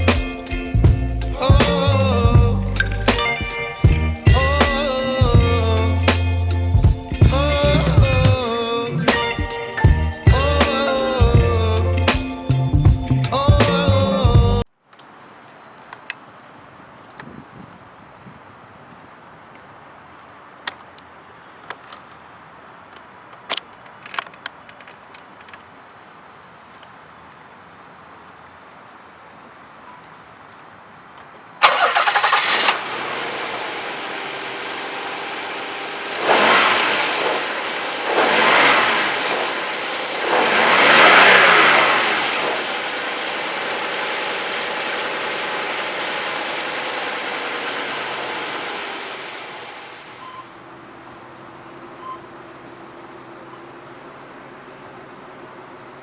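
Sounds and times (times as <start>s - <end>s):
car engine cranking and starting: 0.0s - 14.6s, 31.6s - 50.5s
engine idling: 0.0s - 14.6s, 31.6s - 50.4s
engine revving: 0.0s - 14.6s, 31.6s - 50.4s.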